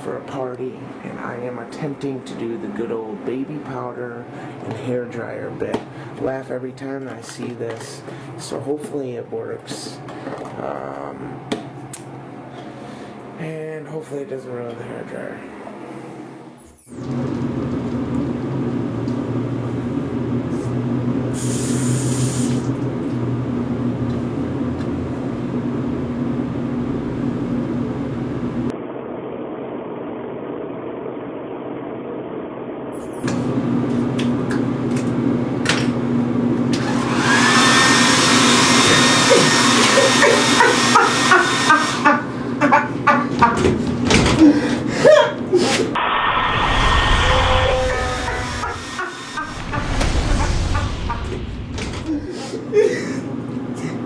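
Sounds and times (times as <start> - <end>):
hair dryer running: 36.8 - 41.9.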